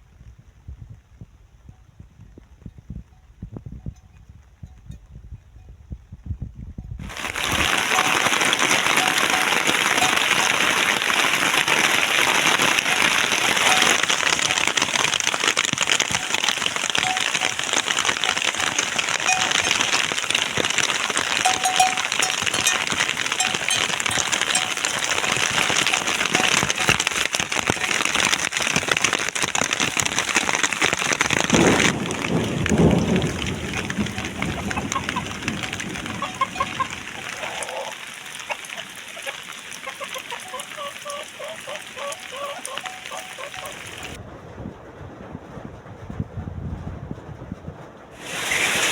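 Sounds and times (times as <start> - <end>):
heavy rain pouring: 7.0 - 44.2, 48.2 - 48.9
low rumbling: 31.2 - 37.2.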